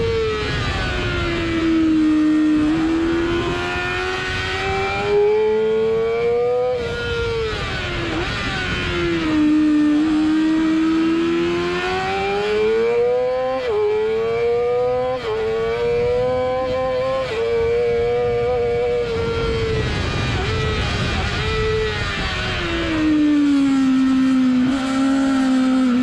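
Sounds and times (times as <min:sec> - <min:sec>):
motorcycle engine revving: 0:00.0 - 0:26.0
wind rush: 0:15.3 - 0:26.0.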